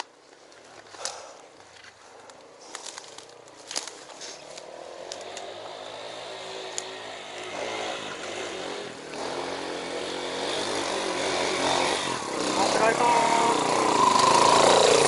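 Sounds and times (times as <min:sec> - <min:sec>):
motorcycle engine running: 0:04.9 - 0:15.0.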